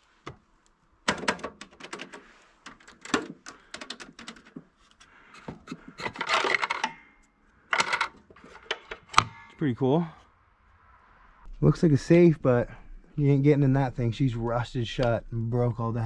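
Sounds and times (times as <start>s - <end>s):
mechanical cash register clacking: 6.0s - 7.0s, 7.7s - 9.2s.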